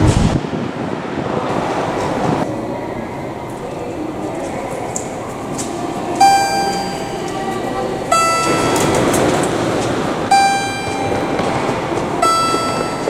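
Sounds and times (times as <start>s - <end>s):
steady train noise: 0.0s - 13.0s
two-tone electronic chime: 6.2s - 7.3s, 8.1s - 9.1s, 10.3s - 13.0s.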